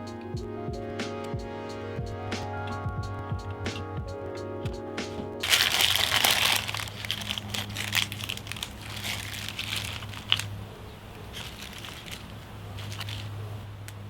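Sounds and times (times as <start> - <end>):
crinkling handling noise: 5.1 - 14.0.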